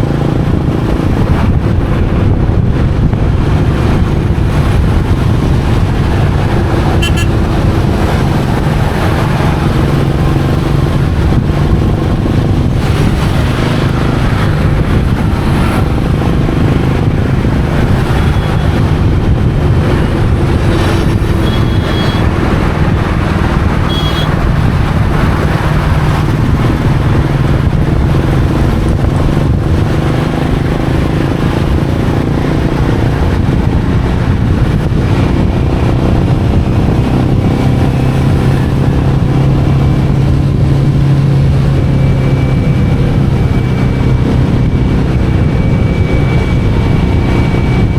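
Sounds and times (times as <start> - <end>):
motorcycle engine running: 0.0 - 47.9
short horn toots: 7.0 - 7.4, 23.9 - 24.4.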